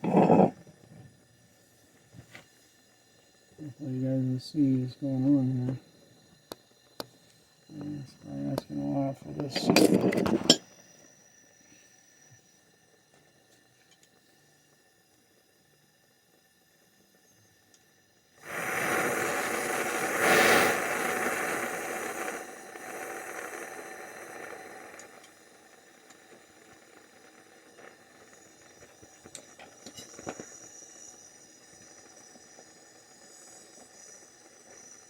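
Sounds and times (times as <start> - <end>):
loud hissing rush: 18.4 - 25.1.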